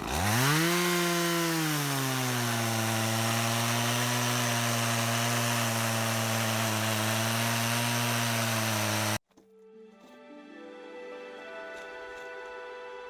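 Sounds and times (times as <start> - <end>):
chainsaw cutting wood: 0.0 - 9.2.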